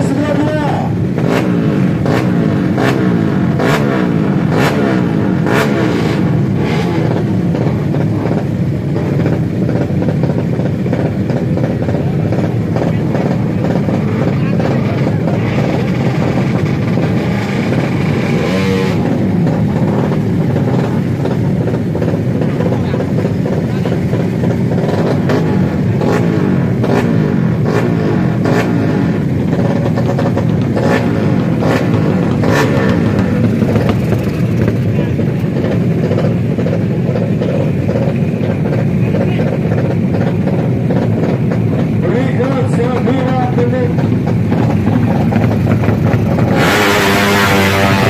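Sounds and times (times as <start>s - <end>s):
motorcycle engines revving: 0.0s - 48.0s
motorcycle passing by: 12.9s - 21.3s, 44.6s - 48.0s.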